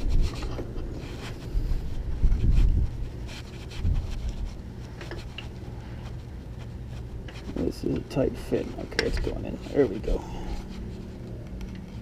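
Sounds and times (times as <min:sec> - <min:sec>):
microphone handling noise: 0:00.0 - 0:05.3.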